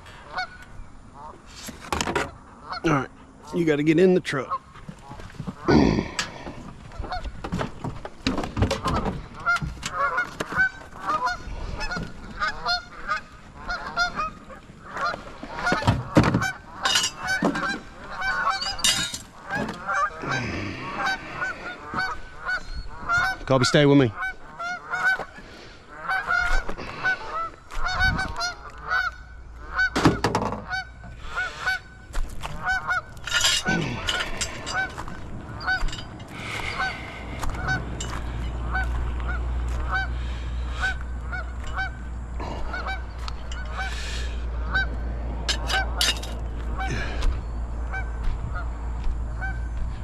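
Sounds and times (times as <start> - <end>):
geese honking: 0.0 - 1.6, 2.2 - 7.6, 8.4 - 50.0
steady low rumble: 30.8 - 50.0.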